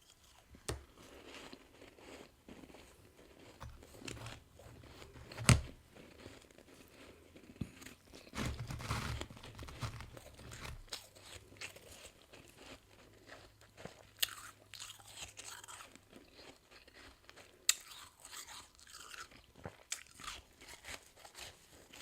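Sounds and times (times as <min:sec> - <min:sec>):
person crunching frost: 0:00.0 - 0:22.0.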